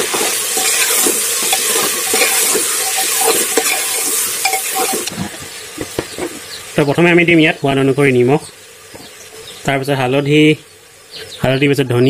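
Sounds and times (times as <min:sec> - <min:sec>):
metal ladle scraping a pot: 0:00.0 - 0:05.1
chicken sizzling in hot oil: 0:00.0 - 0:11.3.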